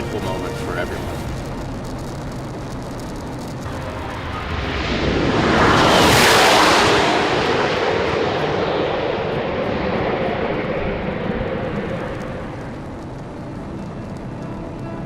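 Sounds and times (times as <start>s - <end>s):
sports car passing at high speed: 3.7s - 12.8s.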